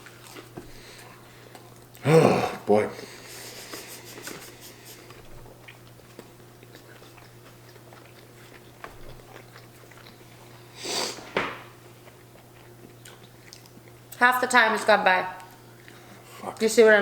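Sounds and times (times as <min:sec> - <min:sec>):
steady low hum: 0:00.0 - 0:17.0
chewing chicken nuggets: 0:03.5 - 0:10.7, 0:12.0 - 0:14.2.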